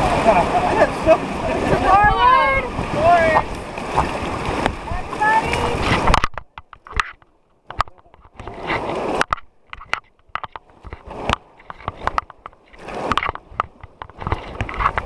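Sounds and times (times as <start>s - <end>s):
river water splashing against raft: 0.0s - 15.0s
sharp knocks and clicks: 5.8s - 15.0s.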